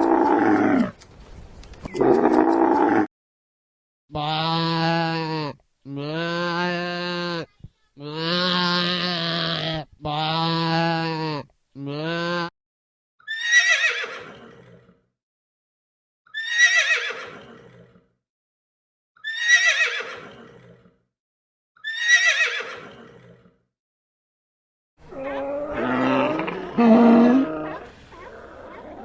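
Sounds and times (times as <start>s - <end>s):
horse whinnying: 13.3s - 14.8s, 16.3s - 17.9s, 19.2s - 20.8s, 21.8s - 23.4s.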